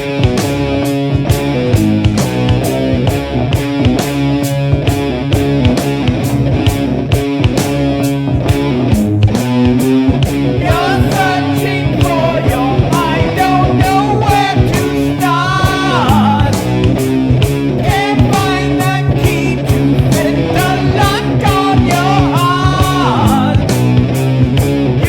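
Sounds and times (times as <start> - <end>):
bass: 0.0 - 25.0
drums: 0.0 - 25.0
electric guitars: 0.0 - 25.0
person singing: 10.5 - 16.9, 17.8 - 23.8.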